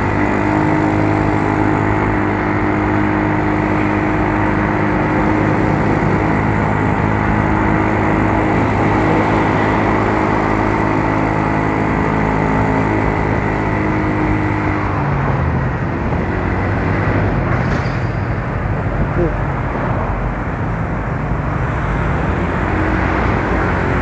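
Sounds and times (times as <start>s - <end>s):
scooter engine running: 0.0s - 17.6s
road and wind noise: 0.0s - 24.0s.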